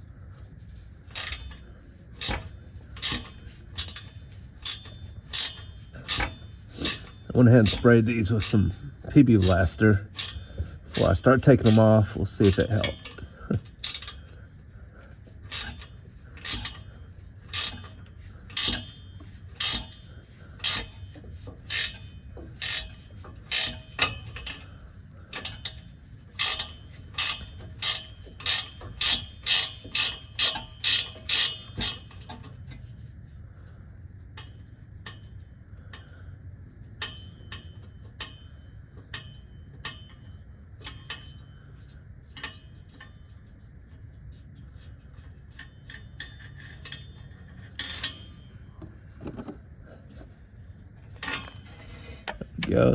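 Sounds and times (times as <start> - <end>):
ratchet wrench clicking: 1.1 - 1.6, 2.2 - 8.6, 9.4 - 11.9, 12.5 - 14.3, 15.5 - 16.9, 17.5 - 24.7, 25.3 - 32.3.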